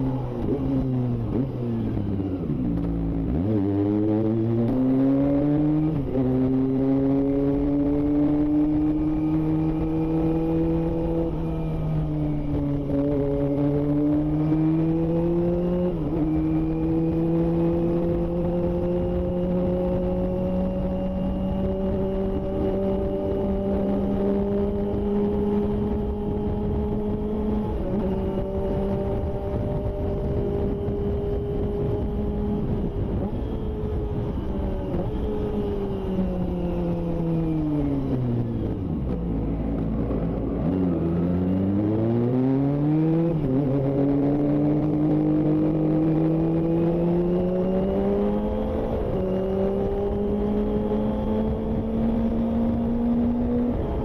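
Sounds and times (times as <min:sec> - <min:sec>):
motorcycle engine: 0:00.0 - 0:54.0.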